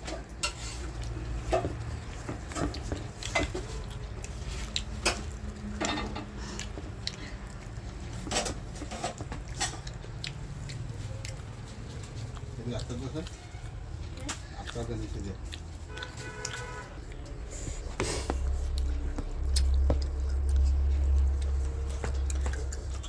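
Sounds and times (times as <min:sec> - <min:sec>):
dishes and utensils clinking: 0:00.0 - 0:03.9, 0:04.5 - 0:06.4
low steady hum: 0:15.4 - 0:23.0.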